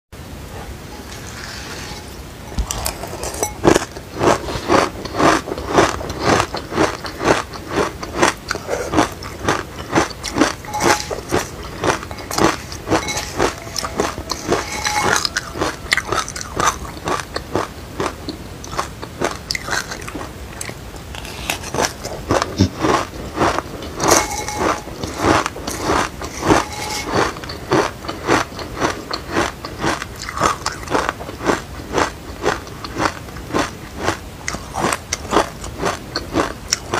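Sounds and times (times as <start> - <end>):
crunchy chewing of seeds: 0.4 - 36.9.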